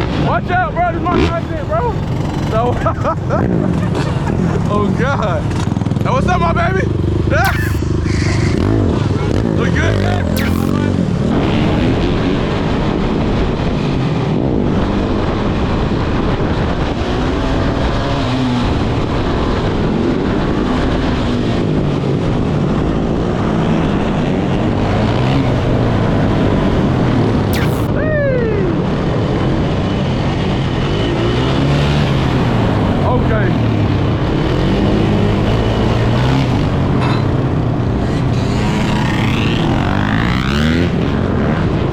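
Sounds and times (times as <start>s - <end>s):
dirt bike engine revving: 7.4s - 11.6s, 27.6s - 27.9s, 34.4s - 41.6s
sharp sound sliding down in pitch: 10.4s - 10.8s.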